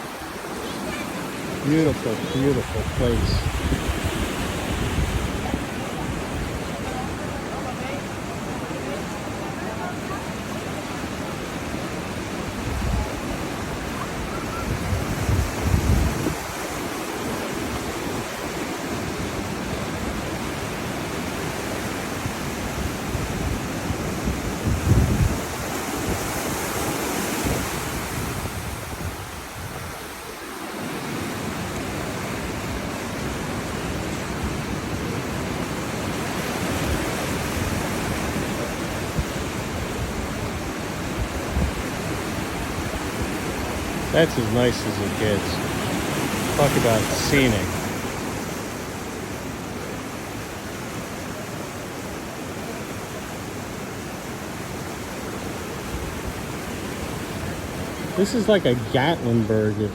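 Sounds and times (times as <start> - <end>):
ocean surf splashing over rocks: 0.0 - 59.9.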